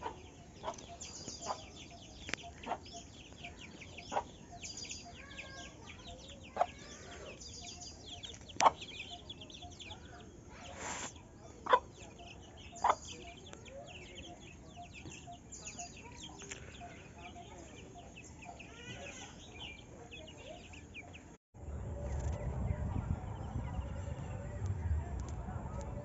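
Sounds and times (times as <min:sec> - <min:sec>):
chickens clucking: 0:00.0 - 0:21.2
small birds chirping: 0:00.0 - 0:21.4
rustling hiss: 0:10.5 - 0:11.2.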